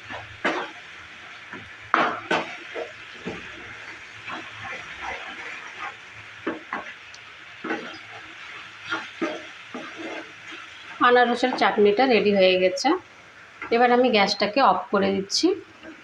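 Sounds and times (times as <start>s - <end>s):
spoon scraping a pan: 0.0s - 0.8s, 1.5s - 11.9s
food sizzling: 0.0s - 16.0s.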